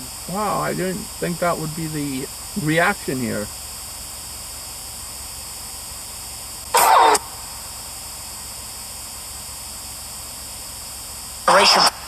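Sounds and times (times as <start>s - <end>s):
short voice-like sound: 0.0s - 3.4s
steady hiss: 0.0s - 12.0s.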